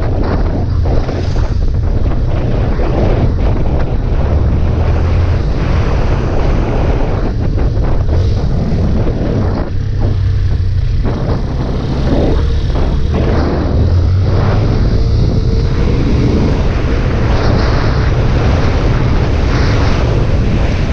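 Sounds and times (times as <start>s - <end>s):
motorcycle engine running: 0.0s - 20.9s
wind rushing over microphone: 0.0s - 20.9s.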